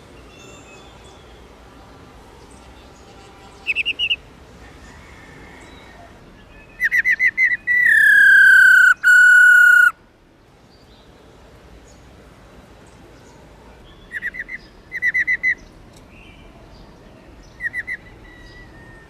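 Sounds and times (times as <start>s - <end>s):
bird calling notes: 3.6s - 4.2s, 6.5s - 10.0s
bird whistle sliding downward: 6.9s - 9.9s.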